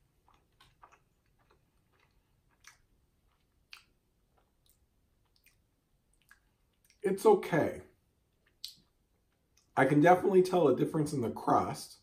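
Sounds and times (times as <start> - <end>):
faint chewing with mouth clicks: 0.0 - 7.1, 8.2 - 9.8.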